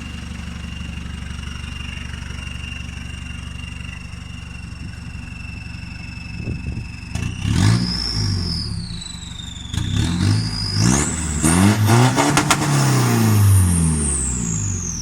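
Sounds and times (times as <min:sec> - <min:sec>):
pickup engine revving: 0:06.9 - 0:15.0.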